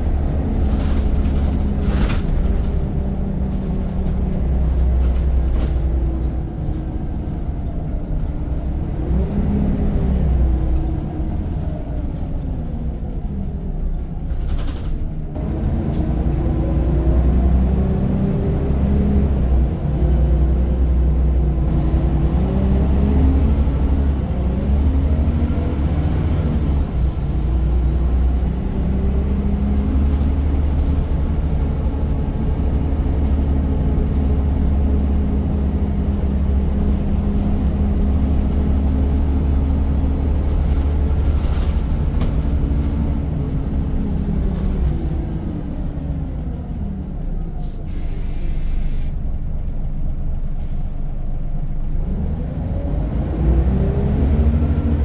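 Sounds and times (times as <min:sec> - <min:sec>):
bus engine rumbling: 0:00.0 - 0:55.0
brief hiss: 0:47.6 - 0:49.1.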